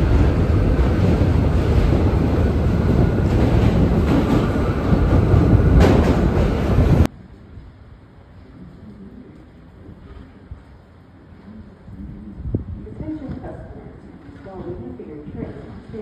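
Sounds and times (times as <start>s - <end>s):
train wheel clatter: 0.0s - 7.1s
subway train rumbling on track: 0.0s - 14.0s.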